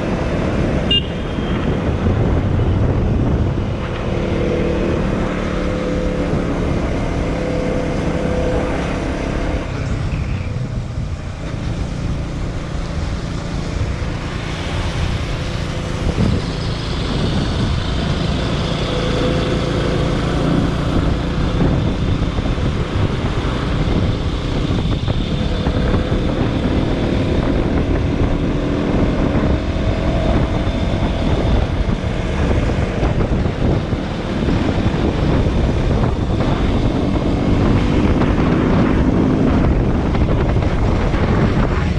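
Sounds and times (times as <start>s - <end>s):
wind and road noise: 0.0s - 41.9s
motorcycle engine running: 12.0s - 41.9s.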